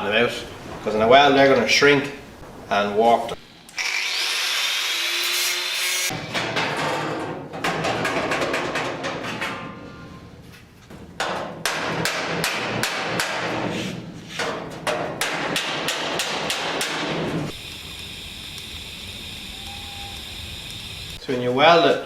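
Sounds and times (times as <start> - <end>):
hammer striking sheet steel: 11.2 - 17.6.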